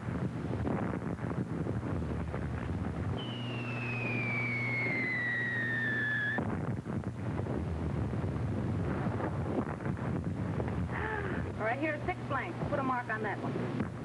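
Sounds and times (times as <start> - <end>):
film track hiss and crackle: 0.0 - 14.0
falling whistle of artillery shell: 3.2 - 6.5.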